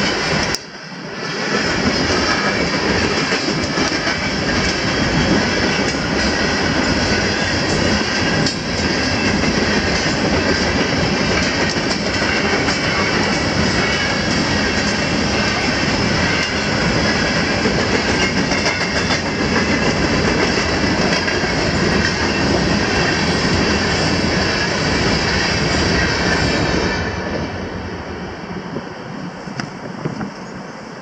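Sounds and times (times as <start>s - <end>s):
wheels clacking over rail joints: 0.0s - 27.0s
freight train rumble: 0.0s - 31.0s.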